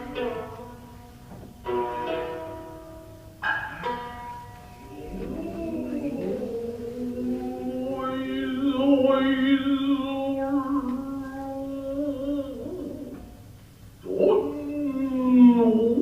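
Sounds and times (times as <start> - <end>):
person chanting long note: 0.0 - 1.4, 4.7 - 13.4.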